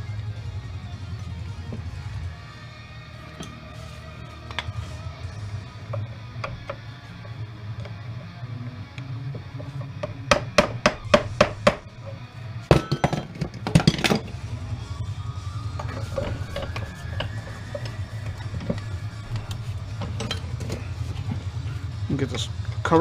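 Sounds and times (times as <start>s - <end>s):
hand tools knocking on metal: 5.9s - 7.4s
faint rising whine: 13.6s - 23.0s.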